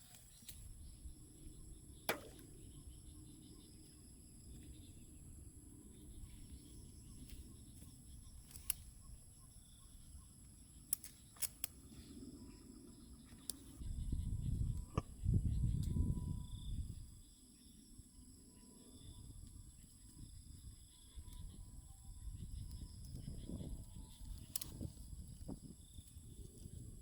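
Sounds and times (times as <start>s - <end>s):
sharp snaps: 2.1s - 2.5s.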